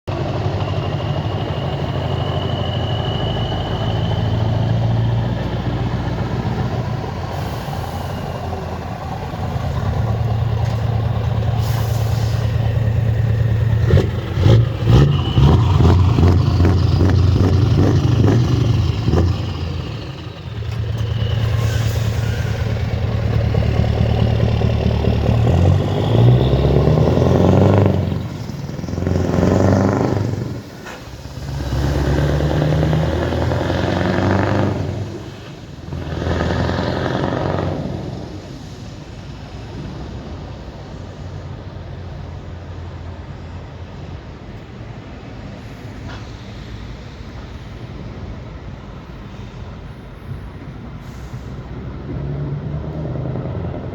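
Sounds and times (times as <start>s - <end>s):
diesel truck engine running: 0.1s - 39.2s
high whistle: 0.4s - 5.4s, 21.0s - 23.1s.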